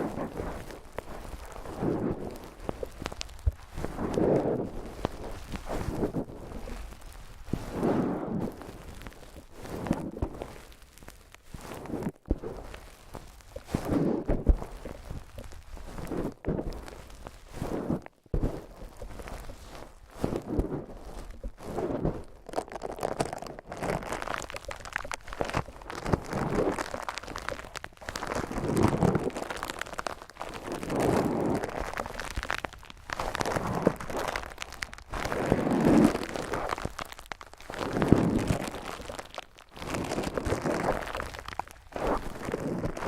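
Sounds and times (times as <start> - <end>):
wind muff rubbing on microphone: 0.0 - 8.6, 13.6 - 22.4.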